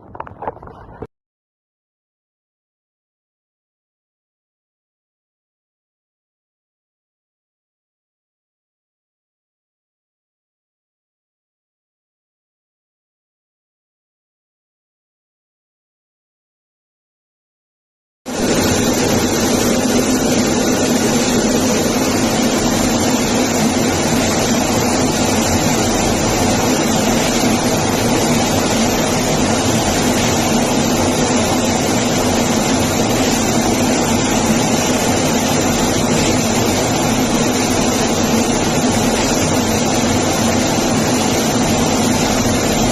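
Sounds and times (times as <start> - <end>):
aircraft engine hum: 18.3 - 42.9.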